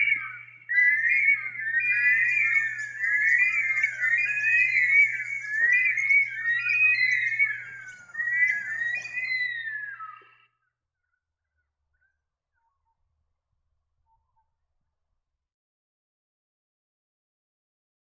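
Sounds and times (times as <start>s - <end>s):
birds wailing whistles: 0.0s - 10.6s.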